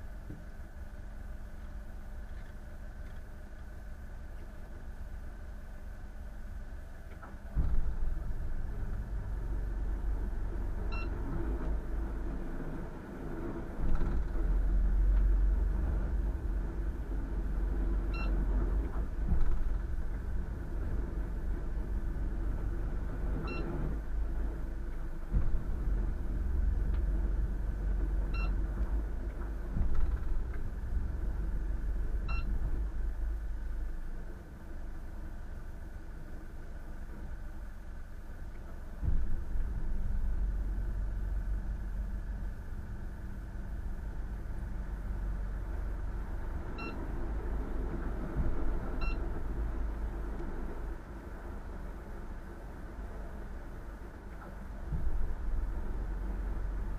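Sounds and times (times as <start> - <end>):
engine rumbling: 0.0 - 56.9
short high beep: 32.3 - 32.5.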